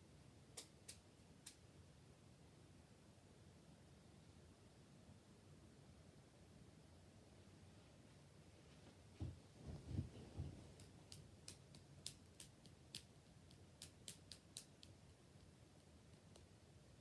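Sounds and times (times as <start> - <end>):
low soft thuds: 9.2 - 10.7
sharp irregular clicks: 10.8 - 16.5.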